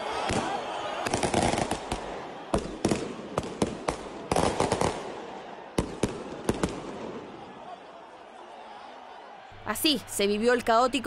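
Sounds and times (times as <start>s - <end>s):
fireworks banging: 0.2s - 7.3s.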